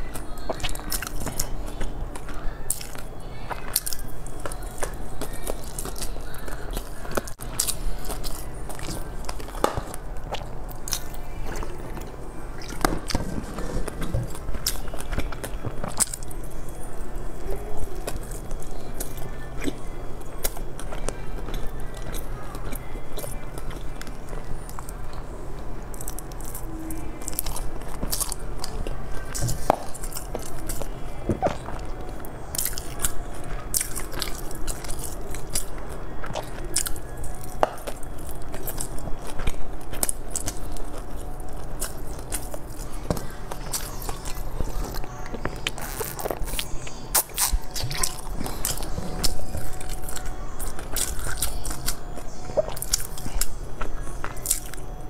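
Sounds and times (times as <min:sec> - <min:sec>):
person biting and chewing: 0:25.9 - 0:55.0.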